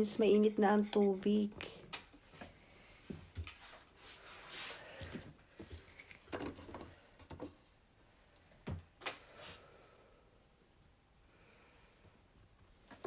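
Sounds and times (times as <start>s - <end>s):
objects knocking and rustling: 5.0s - 7.8s.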